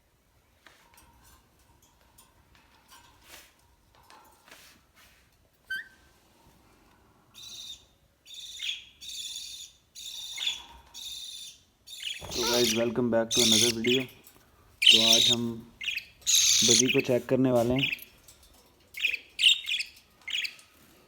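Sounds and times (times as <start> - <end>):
parrot calling: 8.4 - 14.1, 14.8 - 17.1, 19.0 - 20.6.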